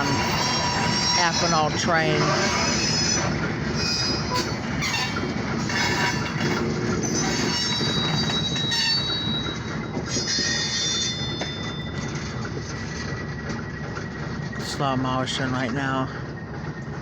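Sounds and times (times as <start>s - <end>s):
train rumble: 0.0s - 17.0s
train wheels squealing on rails: 0.0s - 17.0s.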